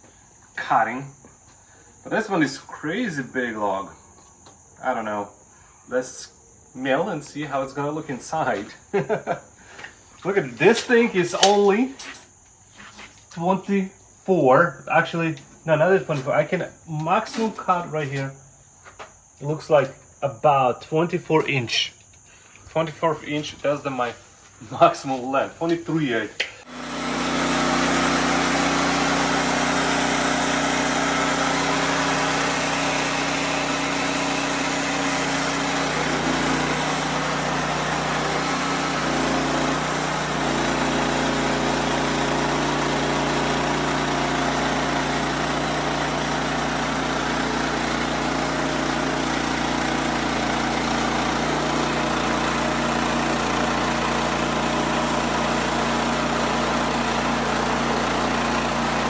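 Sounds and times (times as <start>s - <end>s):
band sawmill cutting log: 26.6s - 59.0s.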